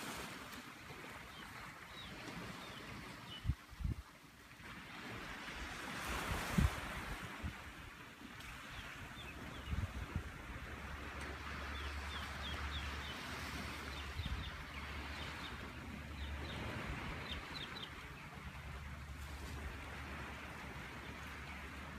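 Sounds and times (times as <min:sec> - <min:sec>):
bird chirping: 0:13.8 - 0:18.3.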